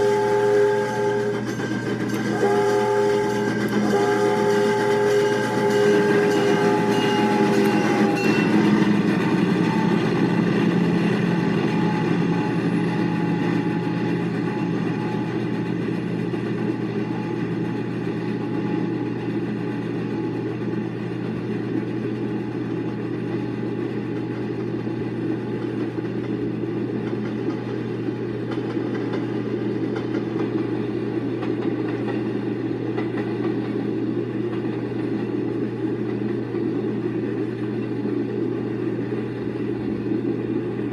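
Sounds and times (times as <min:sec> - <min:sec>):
steam locomotive chime whistle: 0:00.0 - 0:19.4
passenger train rumbling past: 0:00.0 - 0:40.9.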